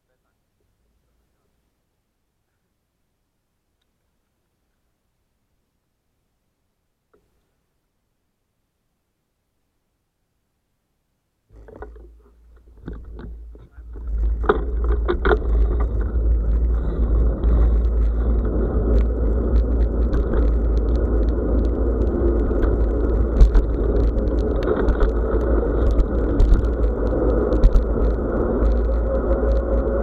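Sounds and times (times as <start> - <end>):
bicycle tyre rumble: 11.5 - 30.0
rattling clicks from bike: 11.6 - 30.0
wind buffeting microphone: 12.7 - 30.0.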